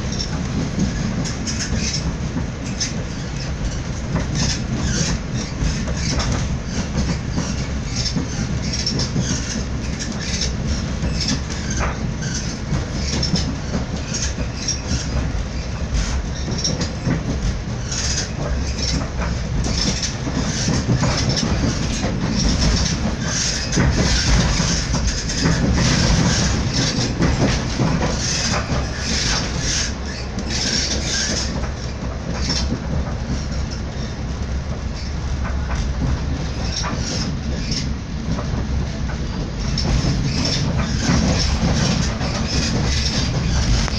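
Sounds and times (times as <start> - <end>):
train rumbling from inside: 0.0 - 43.9
wheels clicking and rattling: 0.0 - 43.9.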